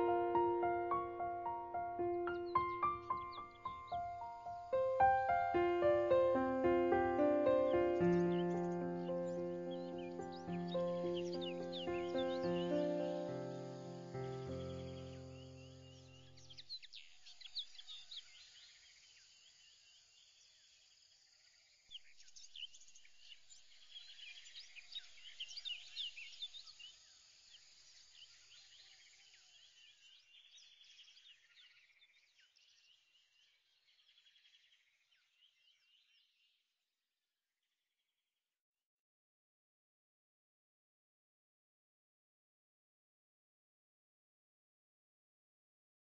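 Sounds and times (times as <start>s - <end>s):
faint birdsong chirps: 0.0s - 36.7s.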